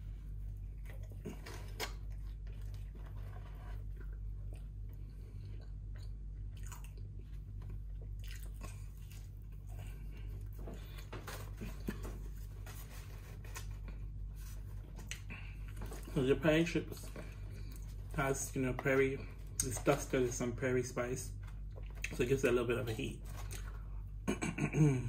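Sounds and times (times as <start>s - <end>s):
steady low hum: 0.0s - 25.0s
person chewing: 0.4s - 12.5s, 13.5s - 16.1s.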